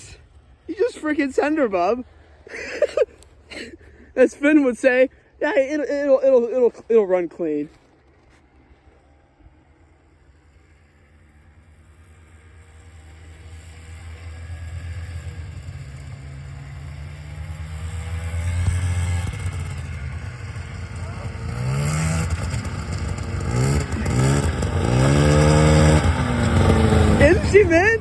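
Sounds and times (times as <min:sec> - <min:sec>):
snowmobile engine revving: 0:10.1 - 0:28.0.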